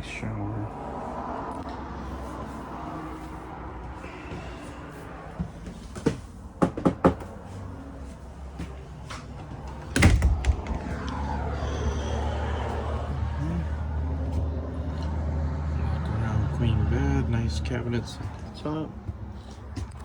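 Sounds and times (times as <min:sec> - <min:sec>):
steady low rumble: 0:09.5 - 0:15.1
latch clicks: 0:09.7 - 0:11.2
door banging shut: 0:09.8 - 0:11.0.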